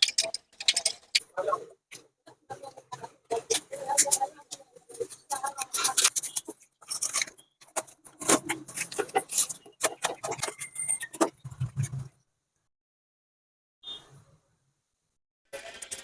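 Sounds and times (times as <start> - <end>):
tools and pipe fittings clattering: 0.0 - 2.0, 2.9 - 12.1.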